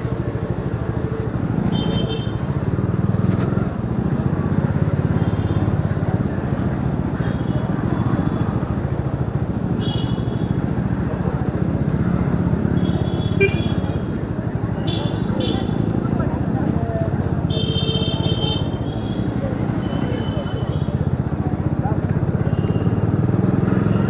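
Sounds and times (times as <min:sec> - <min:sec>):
motorcycle engine rumble: 0:13.0 - 0:17.0.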